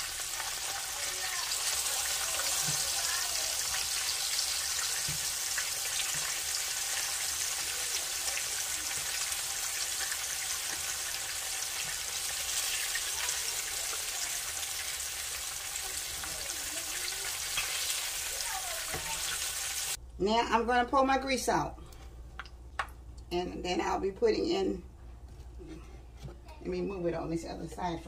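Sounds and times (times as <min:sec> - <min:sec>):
meat frying in hot oil: 0:00.0 - 0:20.0.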